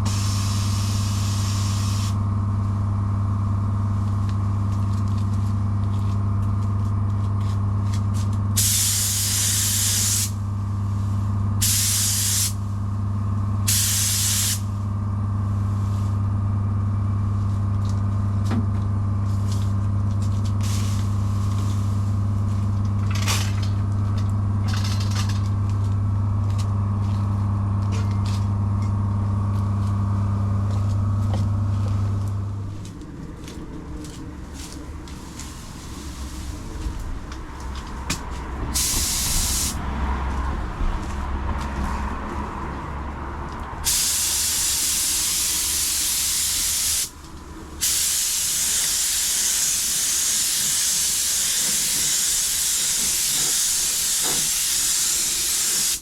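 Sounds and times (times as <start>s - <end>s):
paint spray gun hissing: 0.0s - 2.2s, 8.6s - 10.4s, 11.6s - 12.6s, 13.7s - 14.7s, 38.8s - 39.8s, 43.9s - 47.1s, 47.8s - 56.0s
machine hum: 14.6s - 38.9s.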